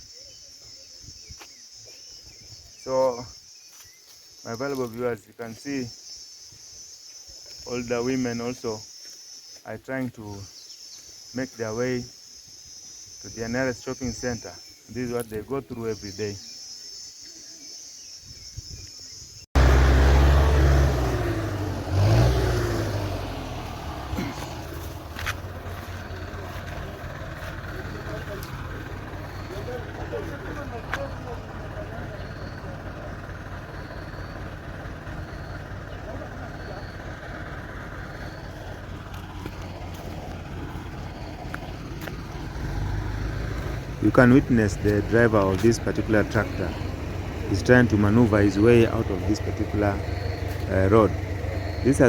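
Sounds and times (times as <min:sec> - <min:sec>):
insects chirring: 0:00.0 - 0:52.0
motor vehicle engine running: 0:19.6 - 0:52.0.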